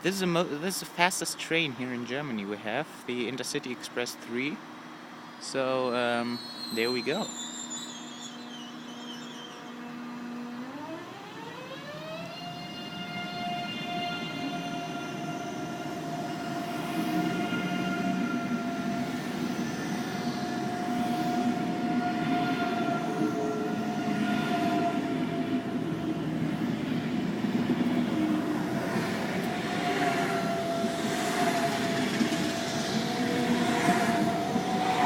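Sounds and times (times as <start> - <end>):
electric train whine: 0.0 - 35.0
wheels rumbling on rails: 13.0 - 35.0
passing rushes: 26.5 - 35.0.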